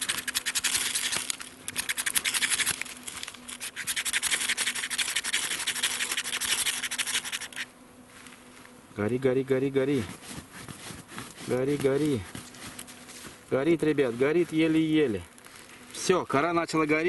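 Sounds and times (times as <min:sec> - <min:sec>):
ferro rod scraping: 0:00.0 - 0:08.6.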